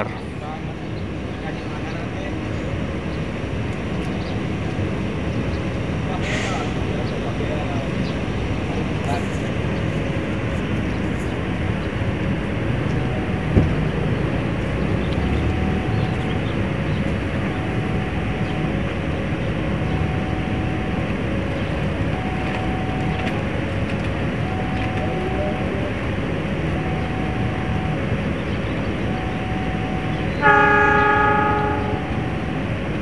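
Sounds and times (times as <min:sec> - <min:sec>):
standing train rumbling: 0:00.0 - 0:33.0
two-tone electronic warning signal: 0:14.9 - 0:33.0.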